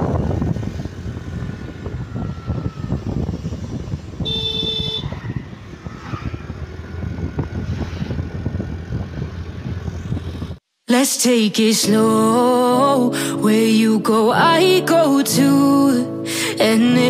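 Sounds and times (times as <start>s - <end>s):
traffic rumble: 0.0s - 10.6s
vehicle horn honking: 4.2s - 5.2s.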